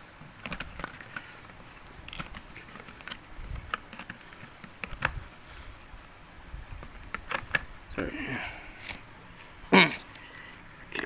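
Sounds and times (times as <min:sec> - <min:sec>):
plastic parts clicking and tapping: 0:00.4 - 0:05.2.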